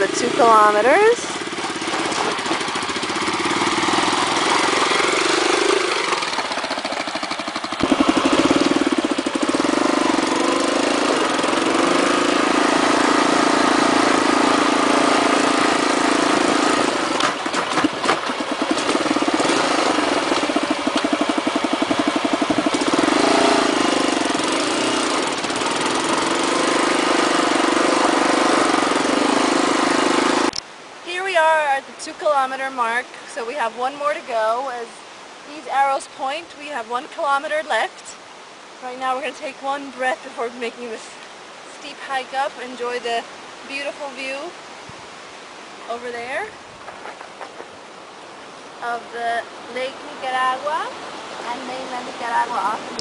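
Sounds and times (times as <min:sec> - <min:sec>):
atv engine running: 0:00.0 - 0:30.6, 0:38.8 - 0:53.0
knocks and rattles: 0:01.6 - 0:09.6, 0:17.2 - 0:23.7.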